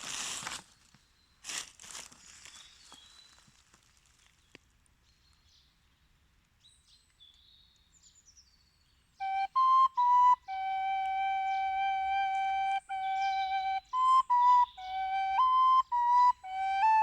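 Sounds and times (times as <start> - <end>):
flute playing: 9.2 - 17.0.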